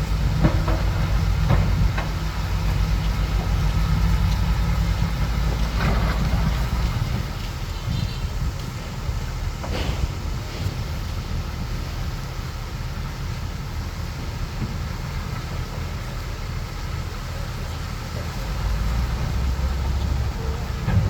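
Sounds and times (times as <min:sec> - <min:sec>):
bulldozer diesel engine running: 0:00.0 - 0:21.0
metal clank: 0:09.6 - 0:11.0.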